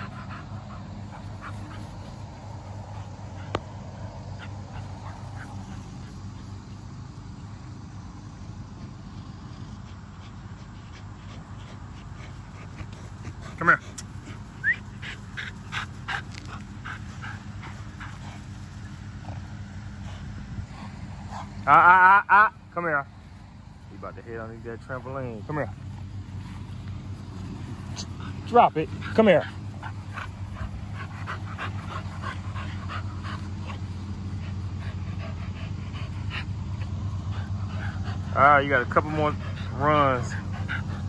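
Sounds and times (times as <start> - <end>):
puppy panting: 0.0 - 7.8, 8.8 - 21.7, 22.5 - 41.0
steady low hum: 0.0 - 41.0.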